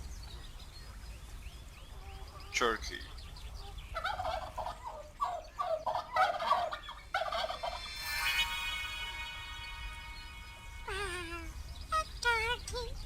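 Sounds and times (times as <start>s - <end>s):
turkey gobbling: 3.6s - 7.9s
long steady high note: 7.2s - 11.9s.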